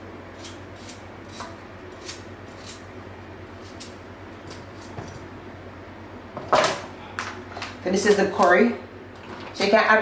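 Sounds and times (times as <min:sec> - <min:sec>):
knife cutting potato: 0:00.3 - 0:02.9.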